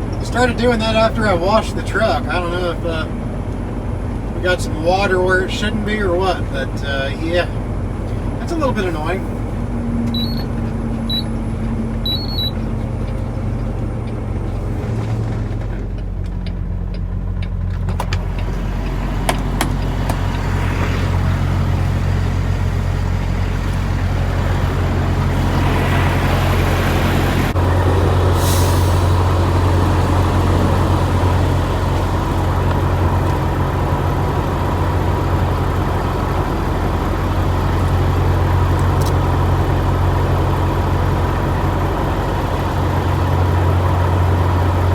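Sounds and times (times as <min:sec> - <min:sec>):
truck diesel engine running: 0:00.0 - 0:44.9
short high beeps: 0:10.2 - 0:10.5, 0:11.1 - 0:11.3, 0:12.0 - 0:12.6.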